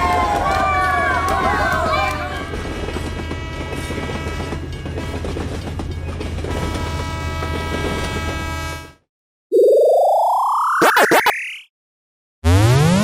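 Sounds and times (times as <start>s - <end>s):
train rumbling past: 0.0s - 8.9s
rising cartoon sound effect: 9.5s - 11.7s.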